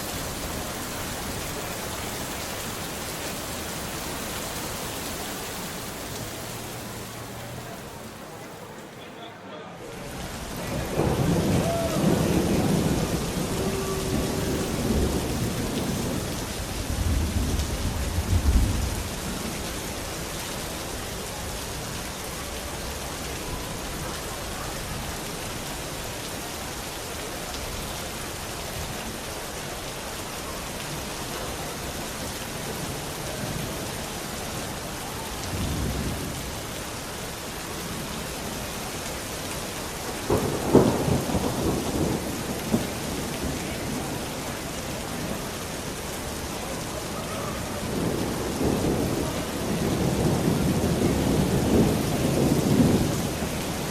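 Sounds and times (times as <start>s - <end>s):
steady rain hiss: 0.0s - 53.9s
rolling thunder: 10.6s - 20.0s, 35.4s - 36.5s, 40.2s - 45.4s, 47.5s - 53.9s.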